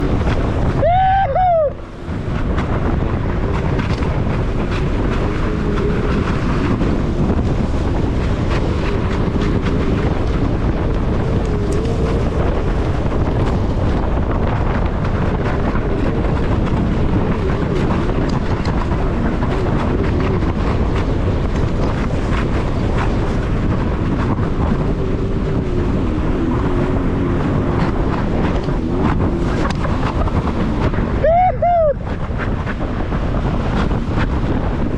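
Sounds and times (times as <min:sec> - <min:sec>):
jet ski engine running: 0:00.0 - 0:34.9
rushing water: 0:00.0 - 0:34.9
wind on microphone: 0:00.0 - 0:34.9.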